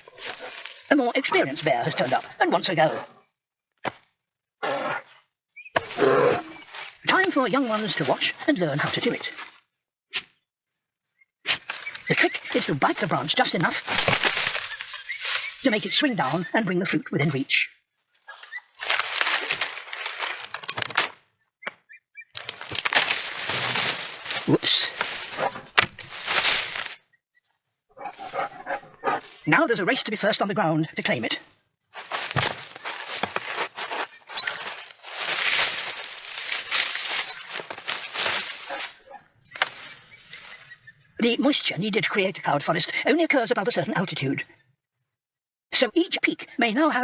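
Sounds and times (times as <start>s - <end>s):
leaves and branches rustling: 0.0s - 3.2s, 5.7s - 9.6s, 11.6s - 17.5s, 18.2s - 21.3s, 22.3s - 27.1s, 28.0s - 30.4s, 31.0s - 41.4s
faint bird chirps: 4.0s - 7.7s, 9.7s - 12.8s, 14.6s - 18.8s, 32.7s - 41.2s.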